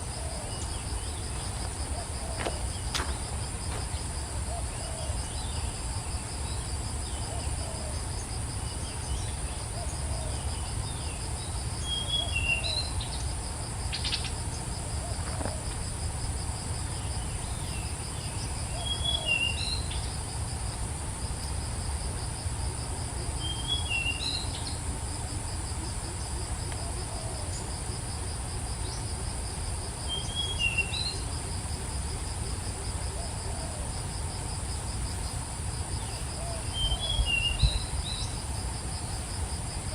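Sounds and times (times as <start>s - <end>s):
insects trilling: 0.0s - 39.9s
songbird chirping: 36.0s - 38.4s.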